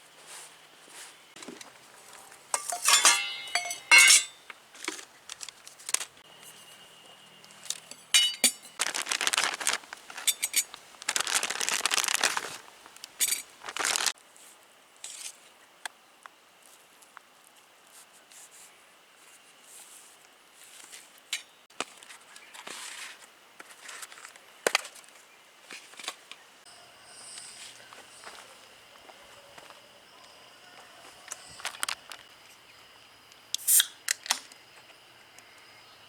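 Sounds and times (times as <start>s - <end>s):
metal and glass clinking: 2.5s - 4.5s, 7.7s - 10.8s
rustling: 7.5s - 15.5s.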